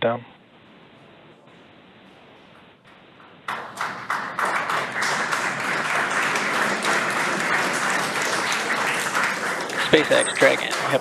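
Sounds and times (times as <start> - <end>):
crowd applause: 3.4 - 11.0.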